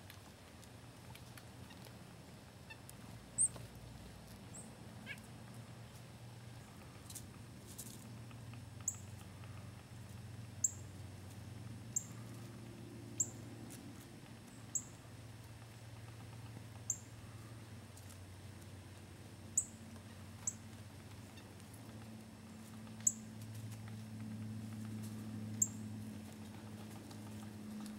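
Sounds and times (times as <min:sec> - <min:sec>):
low steady hum: 0:00.0 - 0:27.9
small bird chip calls: 0:02.6 - 0:03.7, 0:04.4 - 0:05.6, 0:06.4 - 0:12.5, 0:13.1 - 0:17.7, 0:19.5 - 0:23.3, 0:25.5 - 0:26.0.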